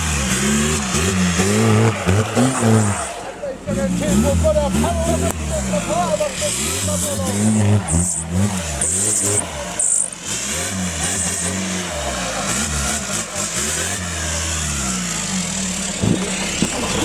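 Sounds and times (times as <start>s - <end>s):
engine revving hard: 0.0s - 17.0s.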